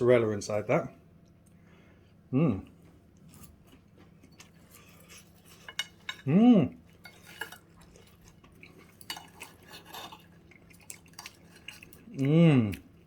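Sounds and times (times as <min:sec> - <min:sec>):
person humming mmm: 0:02.3 - 0:02.7, 0:12.1 - 0:12.9
cutlery scraping on plate: 0:09.0 - 0:10.3.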